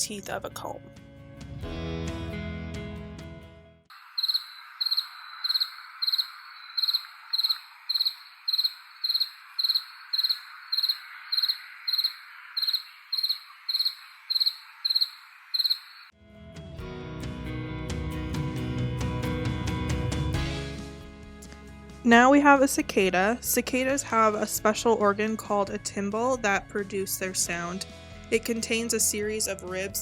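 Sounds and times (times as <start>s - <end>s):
cricket chirping: 3.9s - 16.1s
guitar music: 16.3s - 22.0s.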